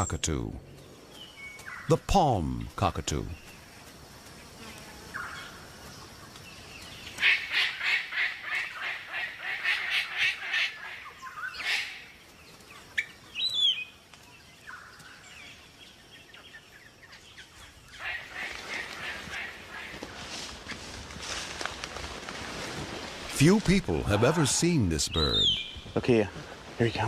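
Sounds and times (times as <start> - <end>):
bird harsh repeated calls: 7.1 - 12.2, 17.9 - 20.2, 23.4 - 26.0.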